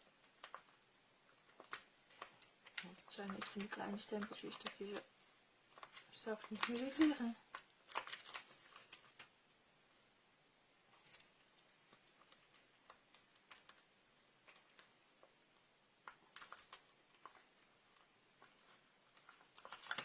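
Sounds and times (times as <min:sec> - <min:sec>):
light clicks and taps of supplies: 0:01.4 - 0:05.0.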